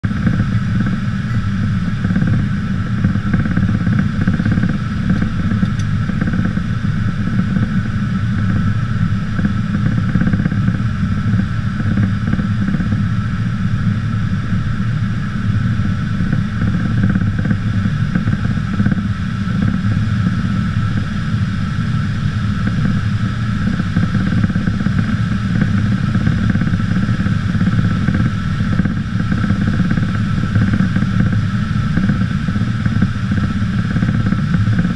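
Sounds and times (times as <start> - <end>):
aircraft engine drone: 0.0 - 34.9.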